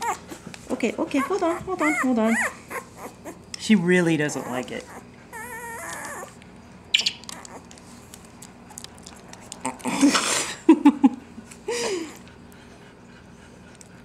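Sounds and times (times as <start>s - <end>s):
puppy mouth smacking and clicking: 5.8s - 9.9s.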